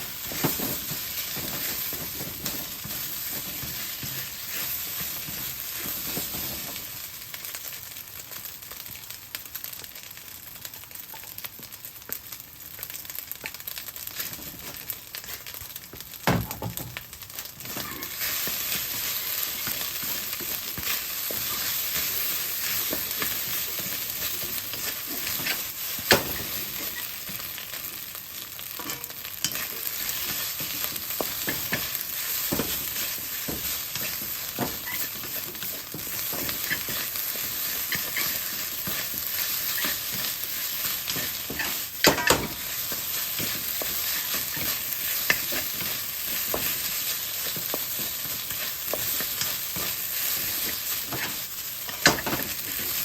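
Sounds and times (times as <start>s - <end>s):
rice sizzling in a pan: 0.0s - 53.0s
spatula scraping a pan: 0.1s - 6.8s, 17.6s - 27.4s, 28.8s - 53.0s.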